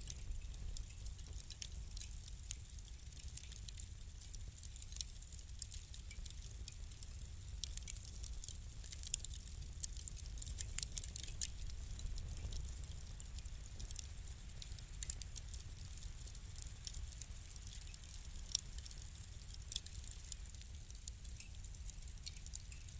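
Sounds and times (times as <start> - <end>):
fire pops: 0.0 - 22.9
wood fire crackling: 0.0 - 22.9.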